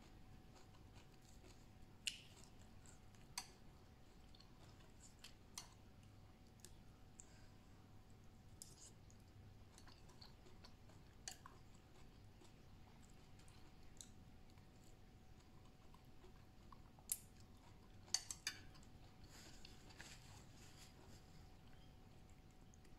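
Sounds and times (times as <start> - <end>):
person chewing food: 0.0 - 7.4, 8.2 - 22.9.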